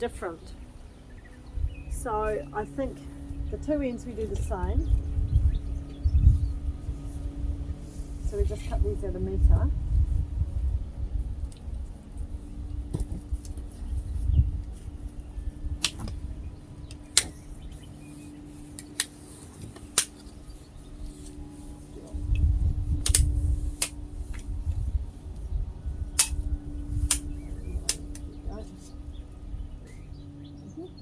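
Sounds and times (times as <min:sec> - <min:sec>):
wind rumble on microphone: 0:00.0 - 0:31.0
pipe clicks and snaps: 0:15.8 - 0:16.2, 0:23.0 - 0:24.0, 0:26.2 - 0:26.4.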